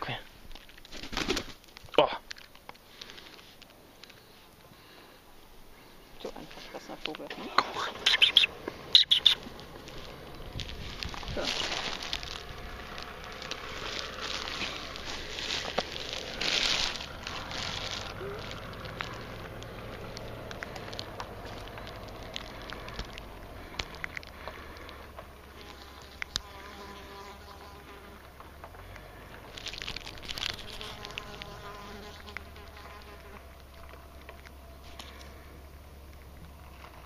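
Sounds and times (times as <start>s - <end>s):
small clicks and rustles: 0.5s - 4.7s, 9.4s - 26.5s, 28.2s - 37.0s
insect buzzing: 24.4s - 28.4s, 29.5s - 33.6s.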